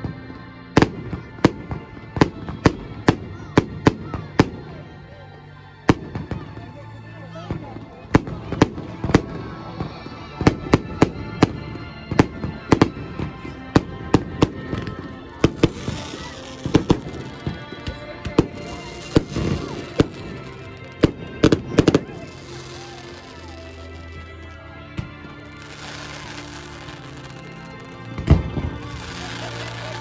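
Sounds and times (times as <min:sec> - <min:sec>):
fireworks bangs: 0:14.4 - 0:24.2
fireworks hissing crackle: 0:15.3 - 0:24.6, 0:25.3 - 0:30.0.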